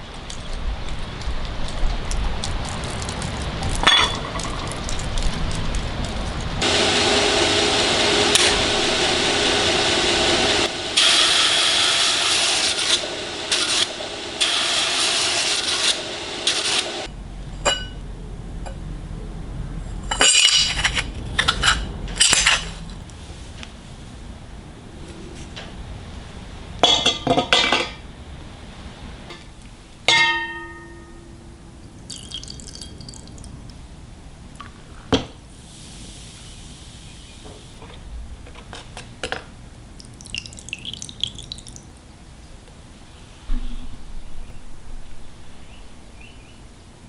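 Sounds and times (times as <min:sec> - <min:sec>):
machine running: 0:05.1 - 0:17.1.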